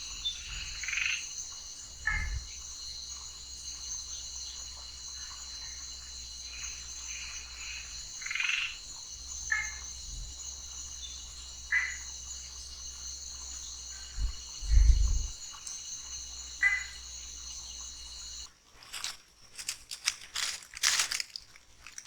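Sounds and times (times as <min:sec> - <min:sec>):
frog calls: 0:00.0 - 0:02.8, 0:05.2 - 0:10.2, 0:10.8 - 0:18.4
insects trilling: 0:00.0 - 0:22.0.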